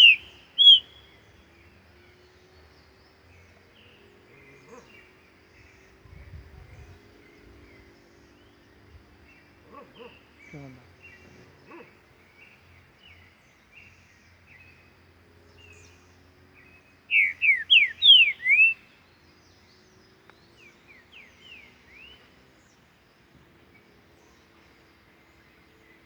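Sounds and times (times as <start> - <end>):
soft short bird chirps: 0.0 - 1.1, 17.1 - 18.8
bird whistling song: 0.0 - 1.3, 16.7 - 19.0.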